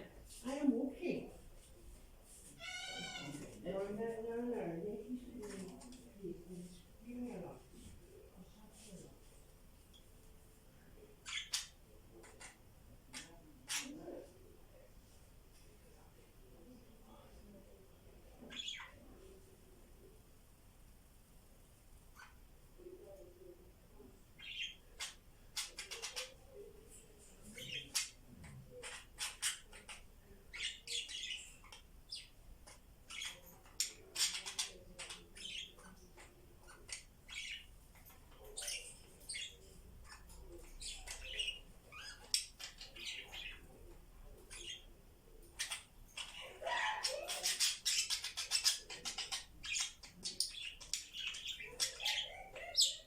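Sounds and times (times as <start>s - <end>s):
budgies chirping and squawking: 2.6s - 3.5s, 24.4s - 26.5s, 27.4s - 53.0s.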